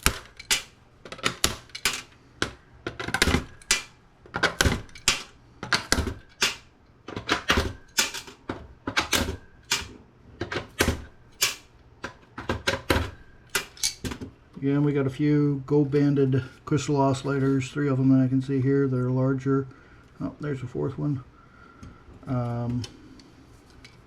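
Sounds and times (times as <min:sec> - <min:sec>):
tools clicking on circuit board: 0:00.0 - 0:09.9.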